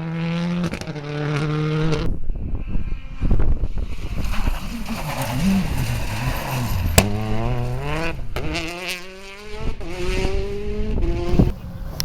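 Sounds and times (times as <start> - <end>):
rally car engine revving: 0.0 - 12.0
sharp crack: 6.9 - 7.4.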